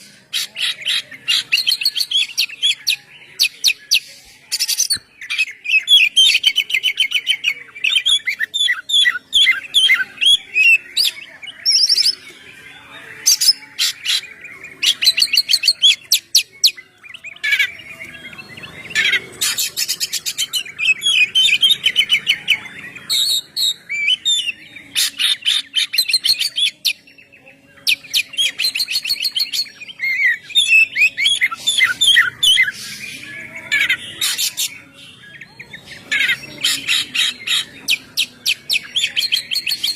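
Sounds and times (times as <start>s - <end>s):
bird singing whistled song: 13.3s - 27.1s, 27.8s - 39.9s.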